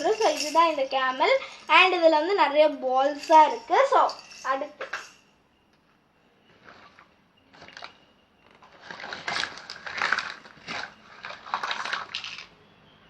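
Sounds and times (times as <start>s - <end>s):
plastic toys rustling and clattering: 6.5s - 12.6s.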